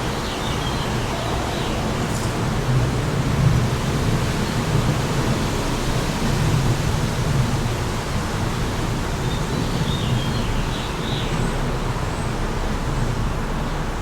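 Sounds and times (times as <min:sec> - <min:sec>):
wind blowing: 0:00.0 - 0:05.6.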